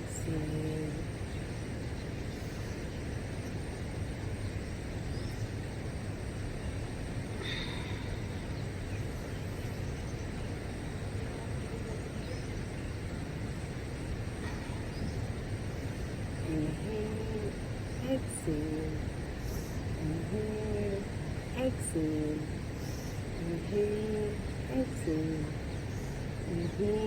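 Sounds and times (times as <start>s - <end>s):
low outdoor rumble: 0.0s - 27.0s.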